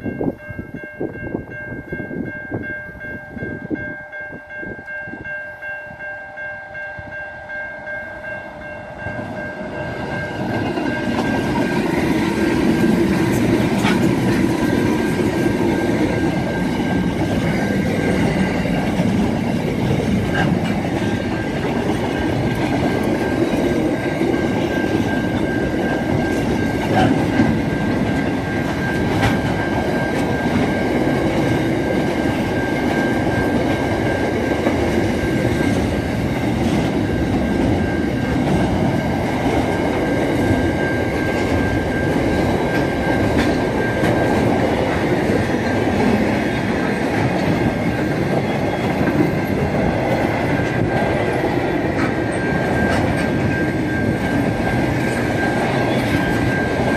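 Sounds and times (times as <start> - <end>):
train wagons rumbling past: 0.0 - 56.9
wheels clacking over rail joints: 10.2 - 56.9.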